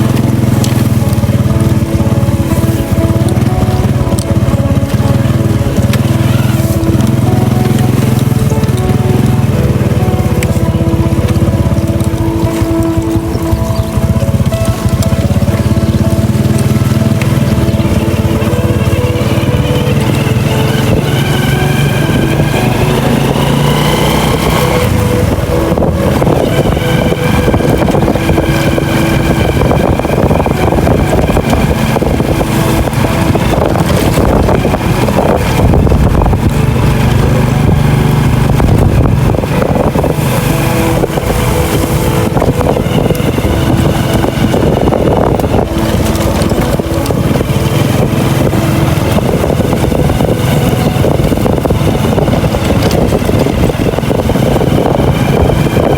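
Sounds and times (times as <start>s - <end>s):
small engine running: 0.0s - 55.9s
wind and rain on microphone: 0.0s - 55.9s.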